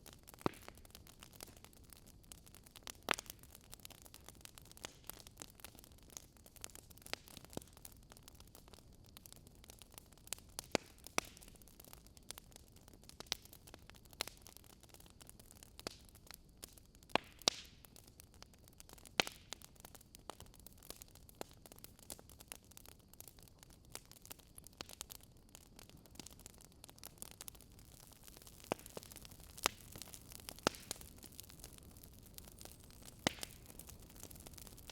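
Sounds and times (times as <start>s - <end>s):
wood fire crackling and popping: 0.0s - 34.9s
soft fire hiss: 15.2s - 34.9s.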